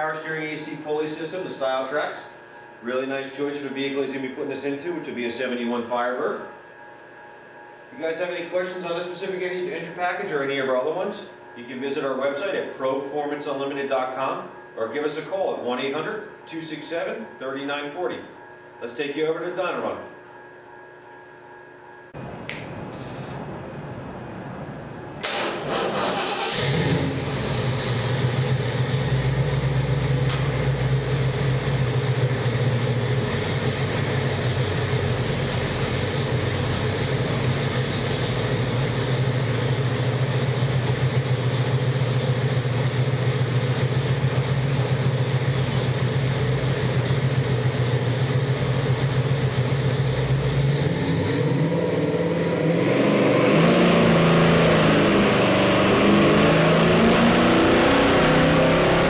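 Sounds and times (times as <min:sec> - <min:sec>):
engine idling and revving: 0:25.2 - 0:59.0.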